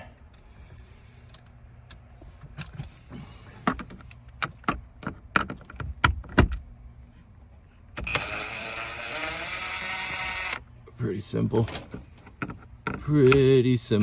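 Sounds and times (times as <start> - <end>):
cordless screw gun whirring: 8.0 - 10.6.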